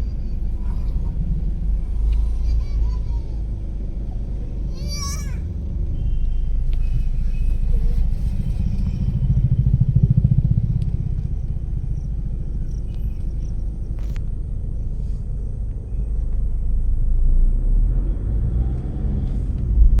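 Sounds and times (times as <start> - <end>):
vehicle engine low rumble: 0.0 - 20.0.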